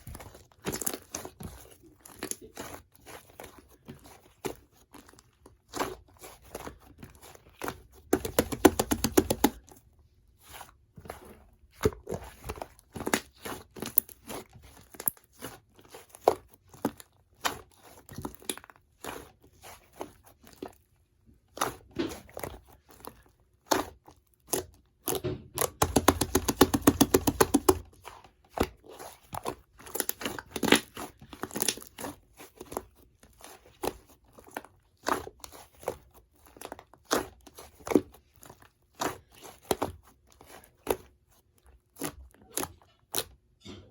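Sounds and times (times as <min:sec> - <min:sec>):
popping air pockets: 0:25.7 - 0:27.9.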